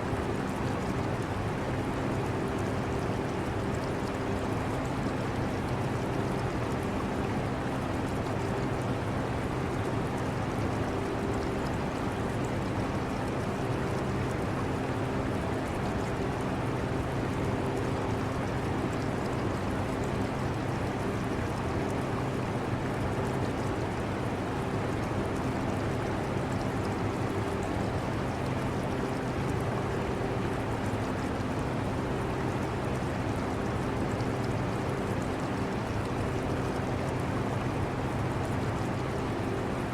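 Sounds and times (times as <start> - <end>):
air conditioner fan hum: 0.0 - 2.2
water trickling in aquarium: 0.1 - 39.9.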